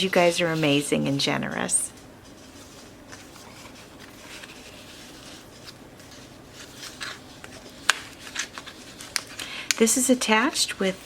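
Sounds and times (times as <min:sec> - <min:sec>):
paper rustling: 0:00.0 - 0:11.0
light ticks of pages: 0:01.6 - 0:09.9.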